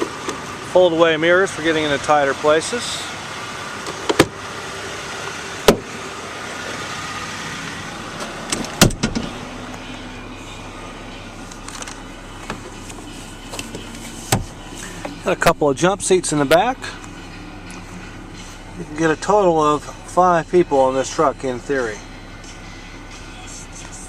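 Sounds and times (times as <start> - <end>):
low hum: 4.4 - 24.0
heavy clunk: 8.2 - 9.4.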